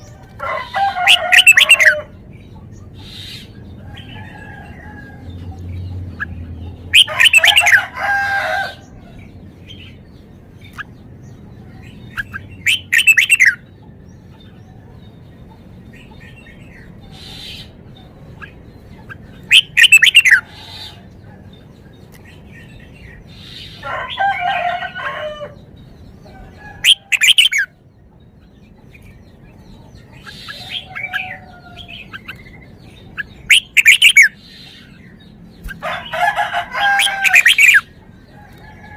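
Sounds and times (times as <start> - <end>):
bird whistling song: 1.0 - 2.0, 6.2 - 7.9, 12.1 - 13.7, 18.4 - 21.0, 26.8 - 27.8, 30.1 - 35.0, 36.9 - 37.9.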